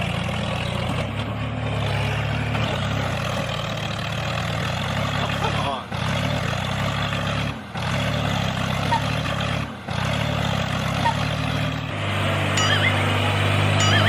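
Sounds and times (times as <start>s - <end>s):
small vehicle engine drone: 0.0s - 14.0s
short chirps: 12.6s - 14.0s.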